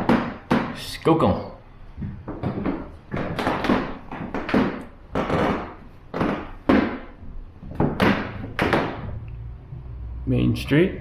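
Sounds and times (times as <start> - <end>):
footsteps on wooden floorboards: 1.9 - 9.2.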